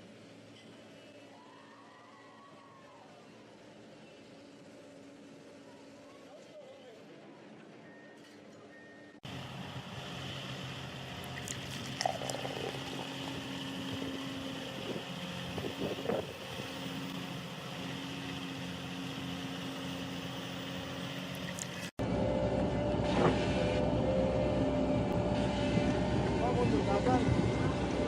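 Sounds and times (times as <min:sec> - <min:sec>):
large engine running: 0:09.3 - 0:28.0
wind noise on microphone: 0:14.7 - 0:16.5.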